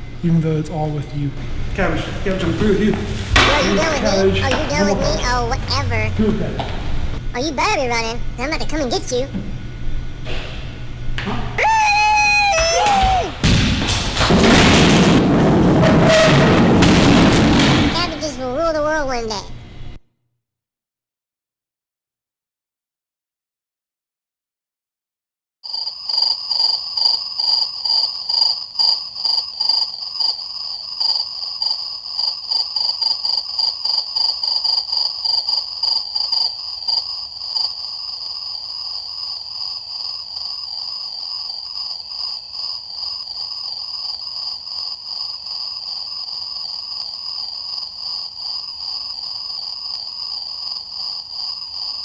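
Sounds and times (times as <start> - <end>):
shrill insect chorus trilling: 0.0 - 6.9, 11.2 - 13.9, 25.7 - 52.0.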